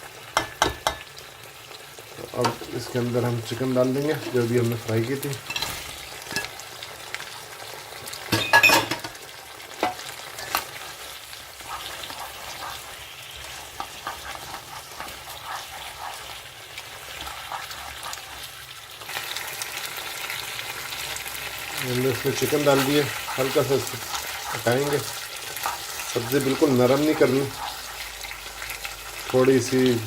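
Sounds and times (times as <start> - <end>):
chicken sizzling in a pan: 0.0 - 30.0
spatula scraping a pan: 2.3 - 6.6, 9.8 - 18.7, 20.8 - 29.8.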